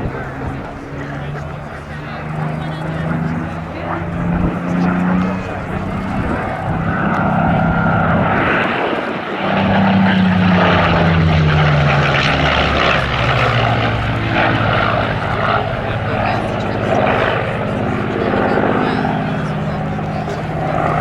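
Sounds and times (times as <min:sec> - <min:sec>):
propeller plane engine fly-by: 0:00.0 - 0:21.0.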